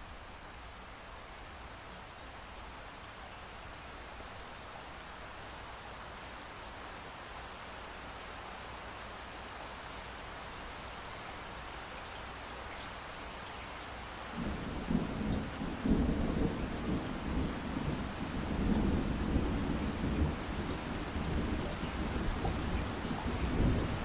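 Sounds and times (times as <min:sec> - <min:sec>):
rain hiss: 0:00.0 - 0:24.0
rolling thunder rumble: 0:14.4 - 0:24.0.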